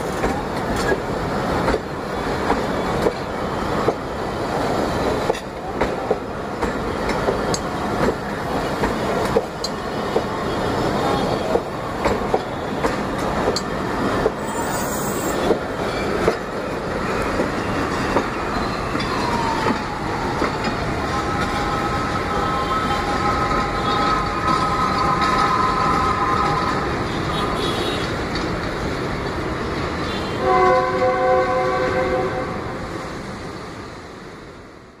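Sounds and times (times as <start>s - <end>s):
train rumbling on track: 0.0s - 35.0s
train horn chord: 30.3s - 32.7s.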